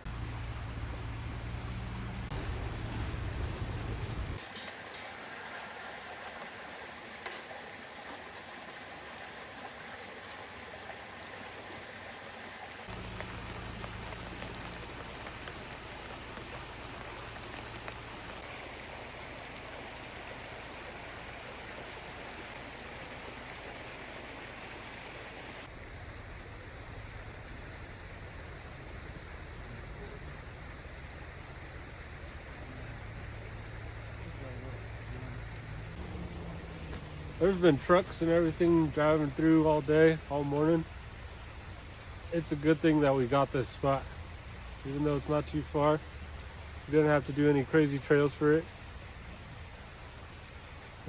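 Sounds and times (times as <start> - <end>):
low rumble: 0.0 - 4.4
steady rain falling: 0.0 - 51.0.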